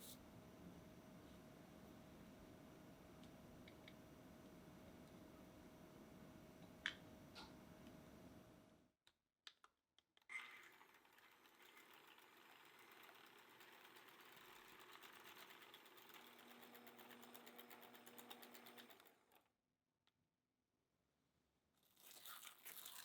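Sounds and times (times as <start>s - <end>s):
small motor rattling: 10.3s - 19.4s.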